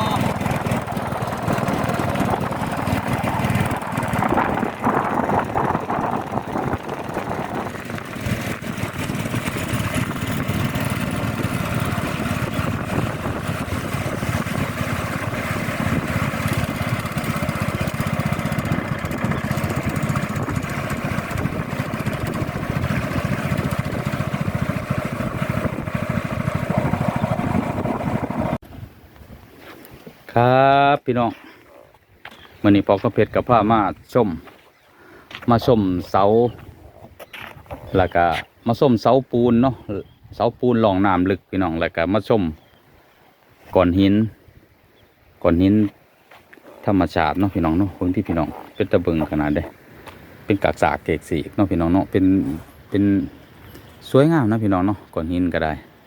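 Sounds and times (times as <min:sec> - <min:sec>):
small boat engine running: 0:00.0 - 0:28.6.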